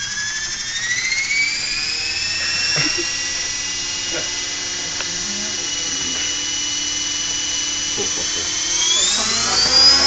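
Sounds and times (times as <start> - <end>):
model helicopter rotor whining: 0.0 - 10.0.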